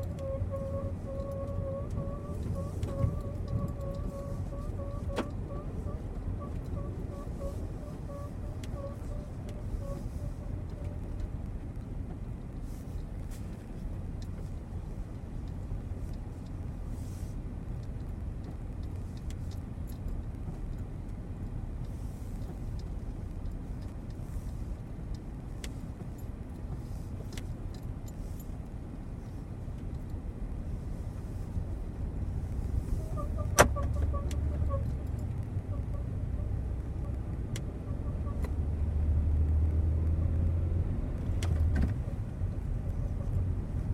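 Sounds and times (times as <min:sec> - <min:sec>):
squeaks from under car: 0:00.0 - 0:11.3, 0:32.7 - 0:38.7, 0:41.6 - 0:43.9
low road rumble: 0:00.0 - 0:43.9.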